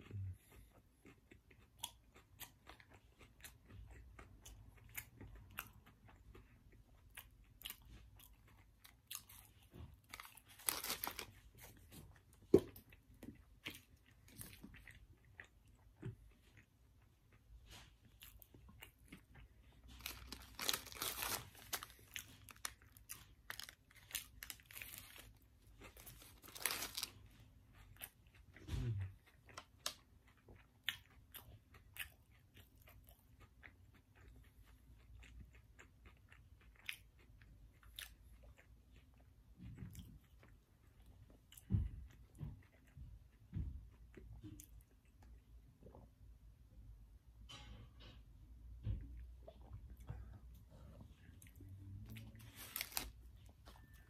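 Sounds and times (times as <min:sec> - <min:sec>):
crunching hash brown: 0:08.2 - 0:15.8, 0:17.8 - 0:28.1.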